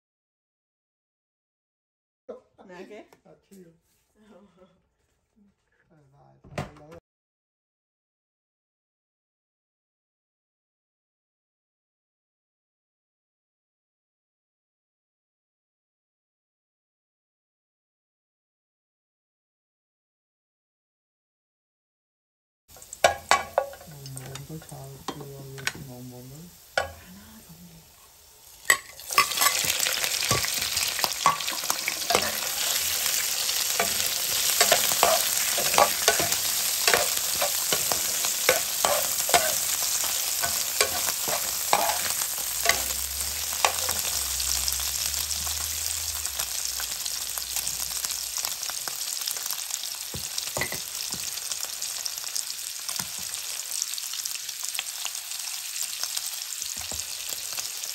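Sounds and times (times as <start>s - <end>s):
garlic frying in oil: 22.7s - 57.9s
shrimp sizzling in a pan: 22.7s - 57.9s.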